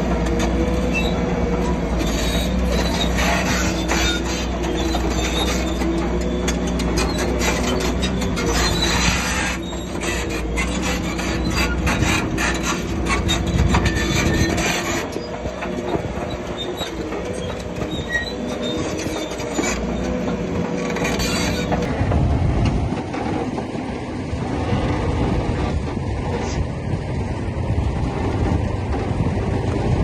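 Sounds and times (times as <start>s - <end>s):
steel tracks clanking and squealing: 0.0s - 23.8s
bulldozer engine running: 0.0s - 30.0s.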